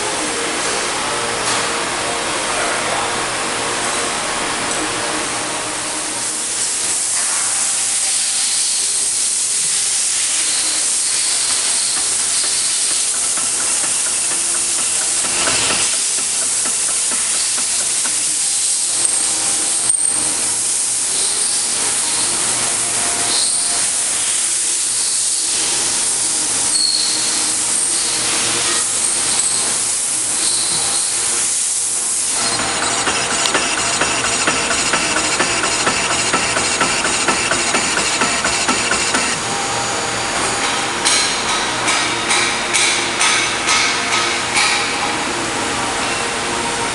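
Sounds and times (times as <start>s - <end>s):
steady hiss: 5.4s - 39.6s
thread rolling machine humming: 9.3s - 20.8s, 31.1s - 40.4s.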